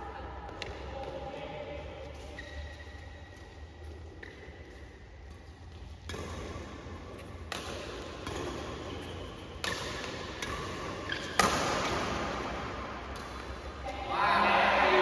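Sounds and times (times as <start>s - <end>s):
rackets hitting shuttlecock: 5.3s - 13.9s
indoor hall noise: 11.7s - 15.0s.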